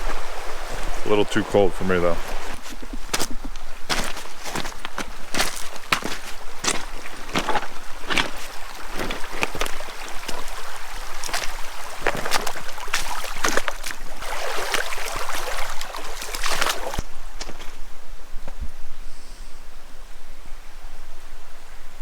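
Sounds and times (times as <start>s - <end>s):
creek running: 0.0s - 17.9s
footsteps crunching on gravel: 2.1s - 17.9s.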